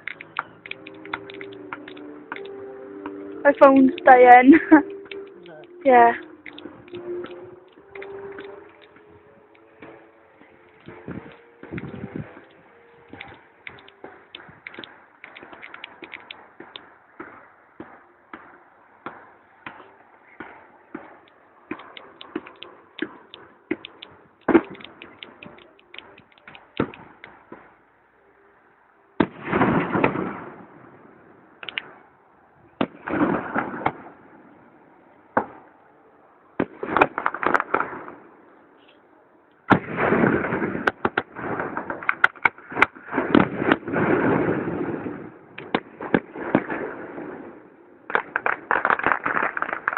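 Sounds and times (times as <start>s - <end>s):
fireworks crackling: 0.0s - 28.0s, 29.2s - 32.2s, 32.8s - 35.8s, 36.6s - 38.3s, 39.7s - 49.9s
fireworks bangs: 9.8s - 27.8s, 29.2s - 32.1s, 32.8s - 34.8s, 36.6s - 38.3s, 39.7s - 49.9s
fireworks cracking and popping: 9.8s - 27.8s, 29.2s - 30.7s, 32.8s - 34.2s, 36.6s - 38.2s, 39.7s - 49.9s.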